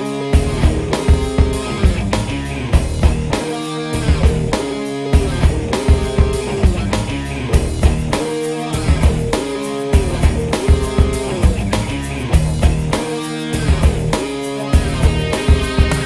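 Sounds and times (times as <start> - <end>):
rock music: 0.0 - 16.0.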